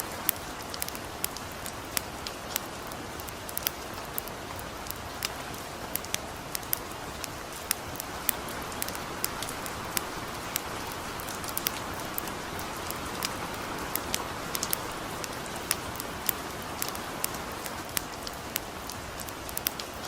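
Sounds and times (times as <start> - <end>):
campfire popping and crackling: 0.0 - 20.0
light rain falling: 0.0 - 20.0.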